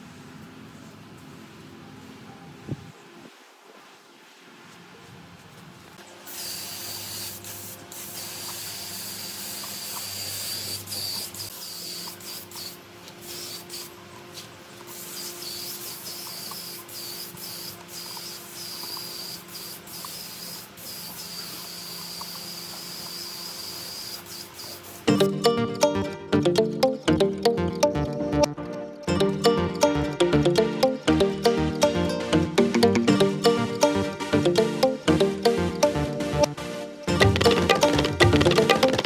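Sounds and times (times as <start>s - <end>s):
spray gun hissing: 6.3s - 13.9s, 14.9s - 25.1s.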